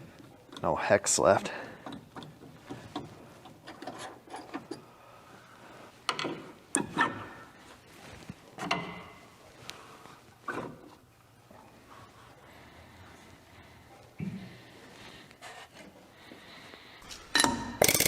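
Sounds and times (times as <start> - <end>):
metal clanks: 17.0 - 18.0
hand tools clicking and rattling: 17.1 - 18.0.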